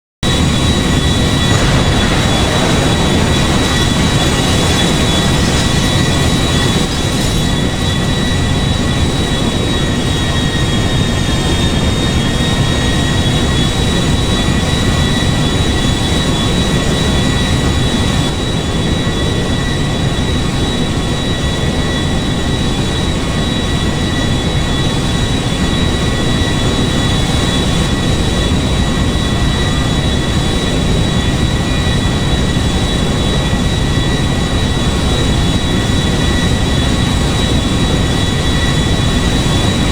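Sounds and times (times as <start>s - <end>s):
machine rumble with high whine: 0.9s - 9.6s.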